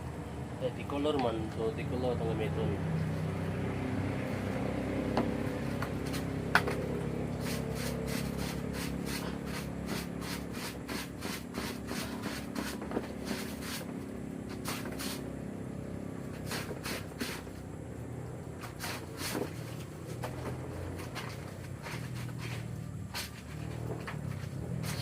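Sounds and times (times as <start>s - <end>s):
steady low hum: 0.0s - 25.0s
wet clothes scrubbed by hand: 7.4s - 15.3s.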